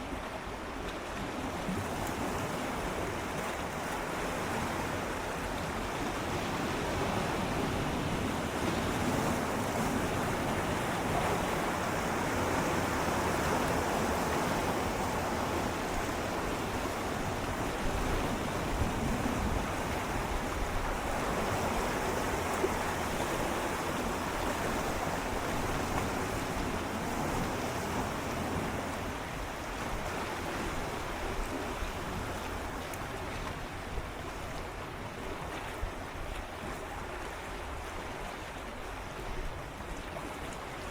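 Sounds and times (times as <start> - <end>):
sea waves lapping against rocks: 0.0 - 40.9.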